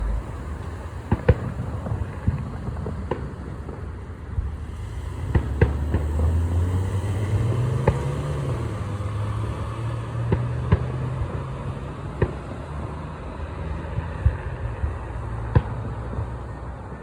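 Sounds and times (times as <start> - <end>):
steady low rumble: 0.0 - 2.6, 4.1 - 7.5
fireworks bangs and pops: 0.0 - 8.7.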